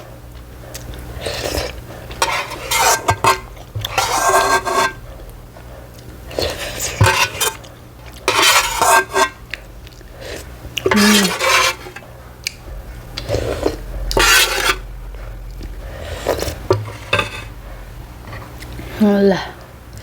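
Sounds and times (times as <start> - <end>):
noisy eating bursts: 0.0 - 20.0
utensils clinking against bowl: 1.2 - 5.0, 6.3 - 9.5, 10.4 - 12.1, 16.2 - 17.6.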